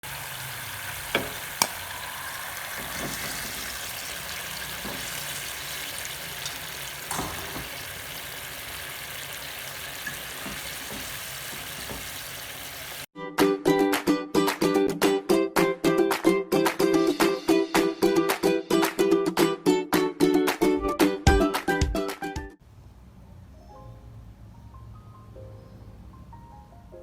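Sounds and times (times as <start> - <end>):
food sizzling in hot oil: 0.0 - 13.1.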